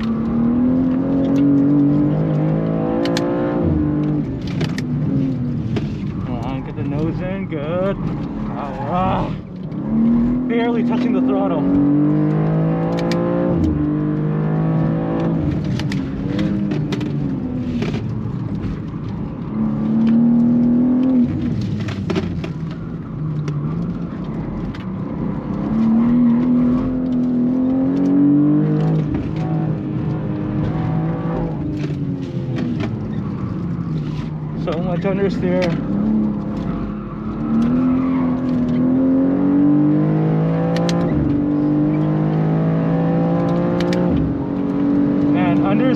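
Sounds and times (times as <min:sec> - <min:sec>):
car engine accelerating: 0:00.0 - 0:45.9
tyre and road rumble: 0:00.0 - 0:45.9.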